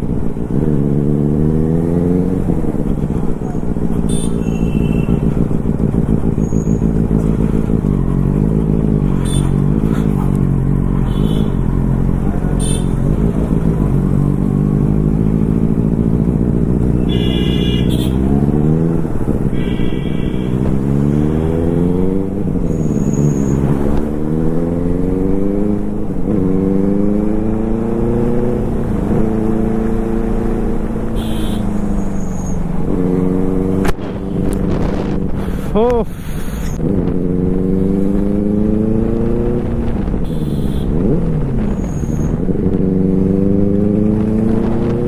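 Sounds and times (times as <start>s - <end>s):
motorcycle engine accelerating: 0.0s - 45.0s
vehicle horn: 4.0s - 5.4s, 9.1s - 9.8s, 11.0s - 11.7s, 12.4s - 13.2s, 17.0s - 18.5s, 19.5s - 20.8s, 31.1s - 32.6s, 40.2s - 41.1s.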